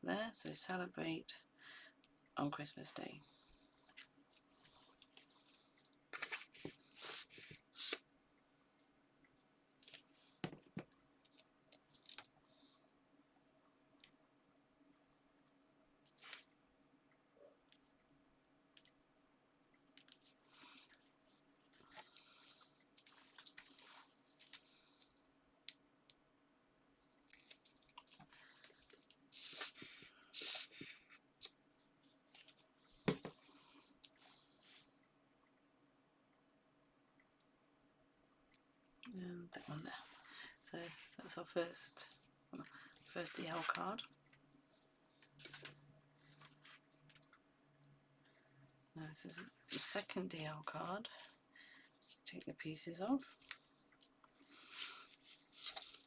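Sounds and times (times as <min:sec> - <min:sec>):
paper rustling and scraping: 0:06.1 - 0:08.0, 0:54.7 - 0:56.0
paper rustling: 0:54.7 - 0:56.0.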